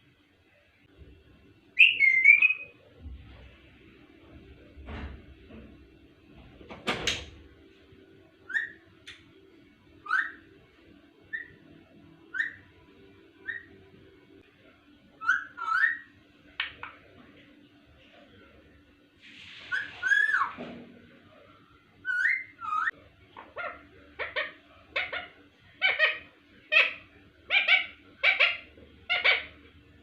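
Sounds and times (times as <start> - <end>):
parrot calling: 1.8 - 2.7, 8.5 - 8.8, 10.0 - 10.4, 11.3 - 11.6, 12.3 - 12.6, 13.4 - 13.8, 15.2 - 16.9, 22.0 - 29.6.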